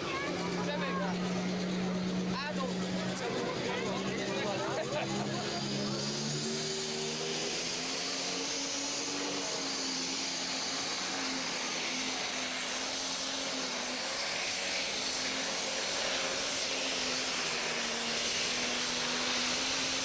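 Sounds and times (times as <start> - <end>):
turbine whine: 0.0 - 20.0
rushing hiss: 6.0 - 20.0.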